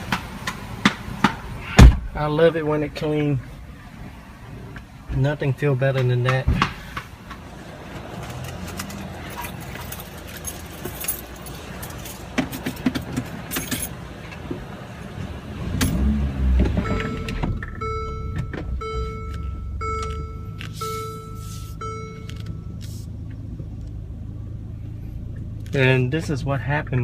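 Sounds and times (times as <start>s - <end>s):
keys clicking and rattling: 8.2s - 13.9s
car warning chime beeps: 16.8s - 22.9s.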